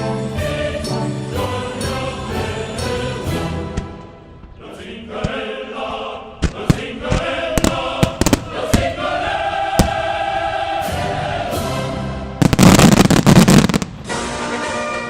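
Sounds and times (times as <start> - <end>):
choral music with held chords: 0.0 - 12.6
firework bangs: 6.4 - 9.0, 9.7 - 10.2, 12.4 - 14.1.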